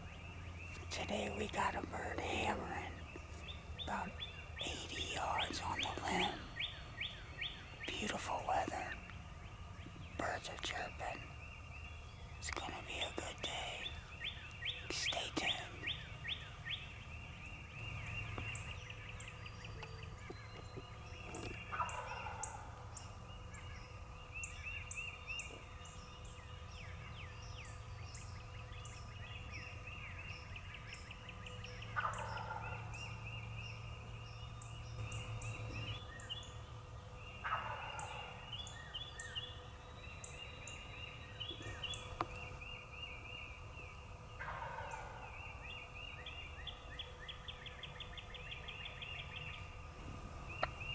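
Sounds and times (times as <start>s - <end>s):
songbirds chirping: 0.0s - 50.9s
turkey gobbling: 21.3s - 22.7s, 32.0s - 33.0s, 37.4s - 38.4s, 44.4s - 45.3s.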